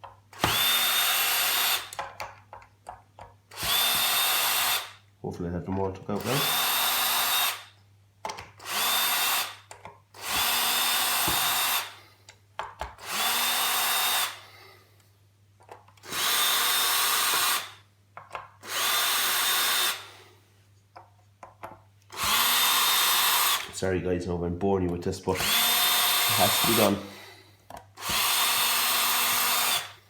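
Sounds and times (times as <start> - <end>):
cordless drill spinning: 0.3 - 2.1, 3.5 - 5.0, 6.2 - 7.8, 8.5 - 12.0, 13.0 - 14.4, 16.0 - 17.8, 18.6 - 20.3, 22.1 - 23.8, 25.3 - 27.3, 28.0 - 30.0.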